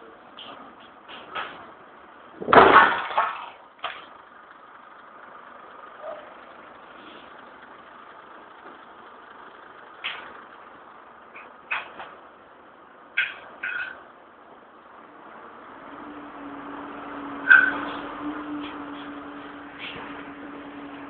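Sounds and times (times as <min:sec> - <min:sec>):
demolition machinery humming: 0:00.0 - 0:21.0
loud heavy crash: 0:02.4 - 0:03.6.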